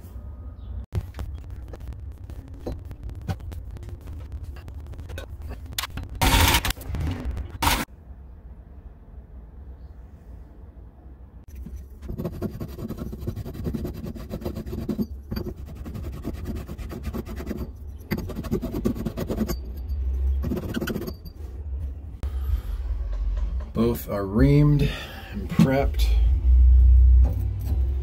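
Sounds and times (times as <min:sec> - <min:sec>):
tool scraping pipe: 0:11.5 - 0:21.6.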